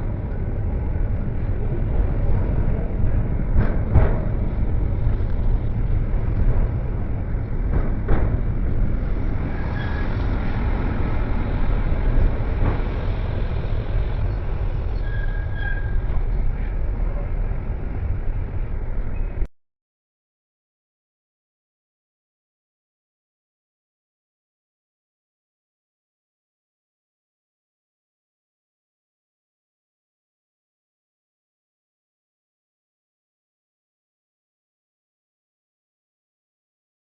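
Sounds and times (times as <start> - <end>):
tram rumbling on rails: 0.0 - 19.5
tram knocking over track: 2.0 - 14.7
tram wheels squealing: 9.1 - 17.2.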